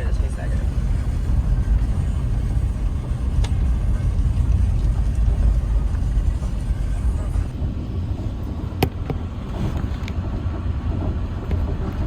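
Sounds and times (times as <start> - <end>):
car rumbling on the move: 0.0 - 12.0.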